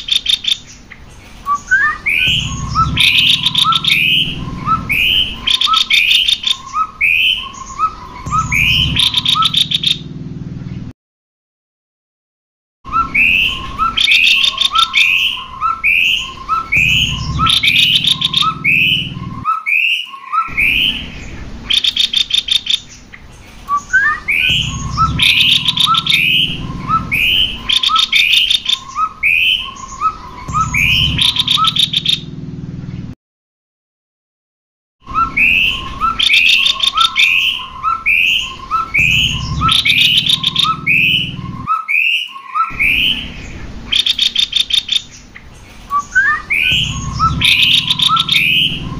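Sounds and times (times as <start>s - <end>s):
bird rattling trills: 0.0s - 10.0s, 13.0s - 19.4s, 20.5s - 32.2s, 35.2s - 41.7s, 42.7s - 48.9s.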